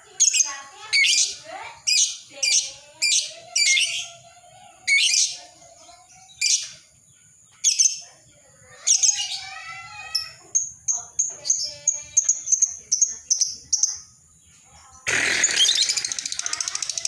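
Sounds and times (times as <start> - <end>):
lovebird harsh high chirps: 0.2 - 4.2, 4.9 - 5.4, 8.8 - 14.1, 15.0 - 17.0.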